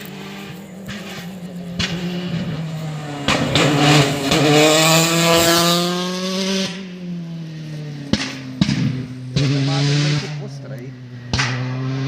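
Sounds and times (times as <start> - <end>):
rally car accelerating: 0.0 - 12.0
sharp knocks: 11.3 - 11.9.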